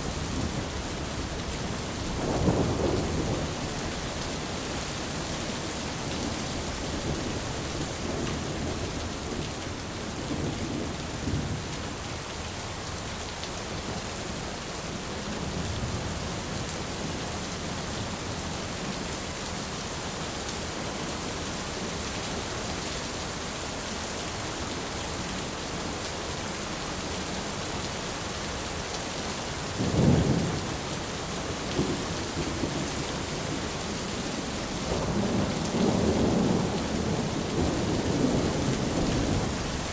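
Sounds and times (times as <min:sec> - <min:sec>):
heavy rain: 0:00.0 - 0:39.9
rolling thunder: 0:02.0 - 0:03.8.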